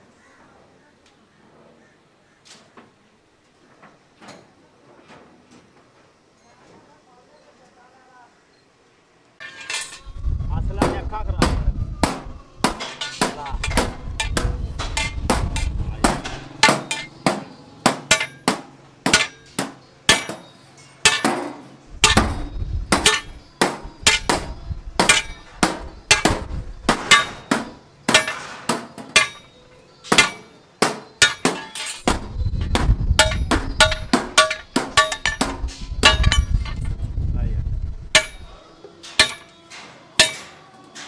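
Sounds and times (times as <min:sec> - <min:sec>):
hammer striking metal: 0:10.8 - 0:36.9, 0:38.1 - 0:40.6.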